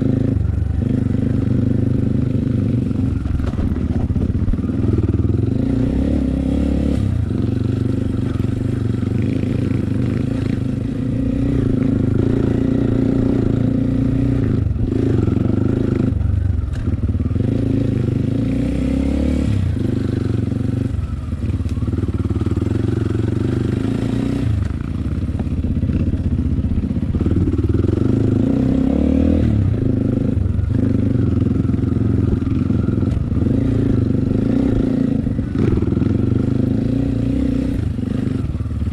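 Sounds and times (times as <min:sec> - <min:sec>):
motorcycle engine revving: 0:00.0 - 0:38.9
motorcycle clattering over rough ground: 0:03.0 - 0:05.0.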